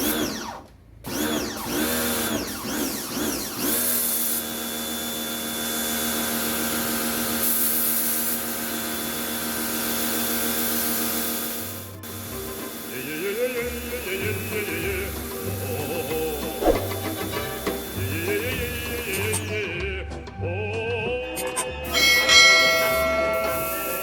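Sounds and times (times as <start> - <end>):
pressure washer motor running: 0.0 - 14.6.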